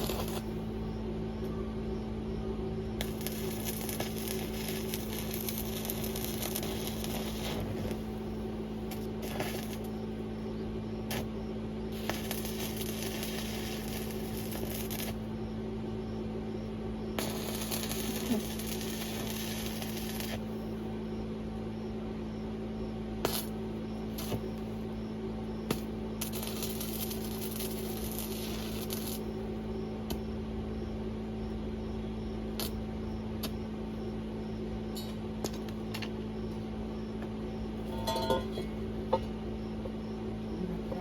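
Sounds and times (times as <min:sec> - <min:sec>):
welding arc hiss: 0:00.0 - 0:00.7, 0:03.0 - 0:10.2, 0:11.0 - 0:15.3, 0:17.2 - 0:20.6, 0:23.2 - 0:24.8, 0:25.6 - 0:30.2
electrical hum: 0:00.0 - 0:41.0.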